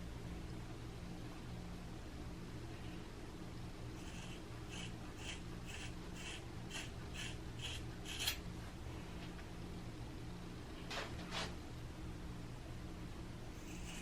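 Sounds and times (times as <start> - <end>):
low steady hum: 0.0 - 14.0
scissors snipping hair: 4.0 - 8.4.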